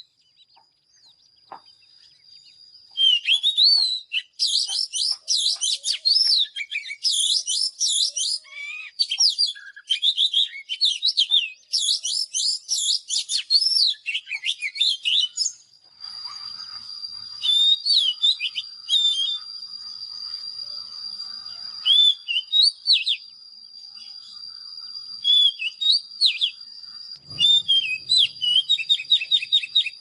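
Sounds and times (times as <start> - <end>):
bird singing whistled song: 0.0 - 30.0
steady high-pitched tone: 15.6 - 30.0.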